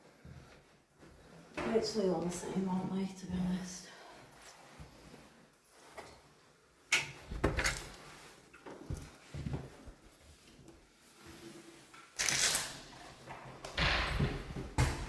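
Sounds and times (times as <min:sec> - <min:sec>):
knocks and scuffs indoors: 0:00.0 - 0:15.0.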